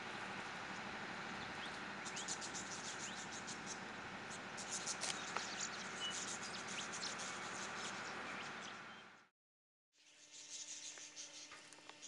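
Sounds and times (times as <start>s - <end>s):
steady outdoor hiss: 0.0s - 9.3s
small birds chirping: 0.1s - 9.3s, 10.0s - 12.0s.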